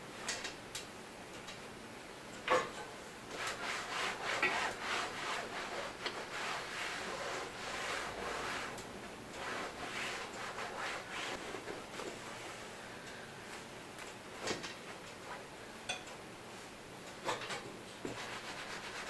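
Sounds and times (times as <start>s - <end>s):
rubbing strokes on a surface: 3.3s - 12.7s, 18.0s - 19.0s.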